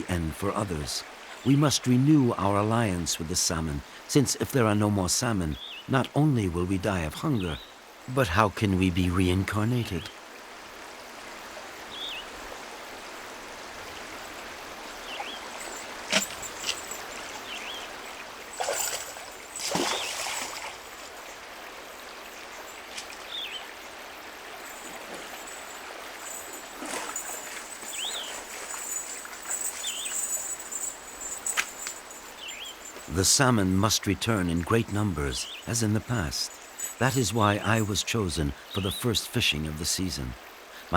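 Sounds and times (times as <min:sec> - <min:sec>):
stream flowing: 0:00.0 - 0:40.9
water splashes: 0:13.0 - 0:38.6.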